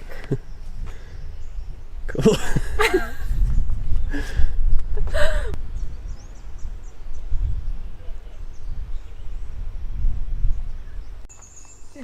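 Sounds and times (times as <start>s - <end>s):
wind buffeting microphone: 0.0s - 12.0s
faint high bird chirps: 10.4s - 12.0s.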